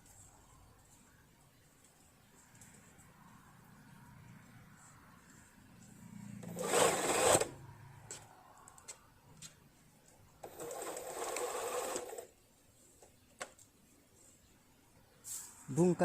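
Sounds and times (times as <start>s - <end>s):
sewing machine running: 6.5s - 7.5s, 10.4s - 12.3s.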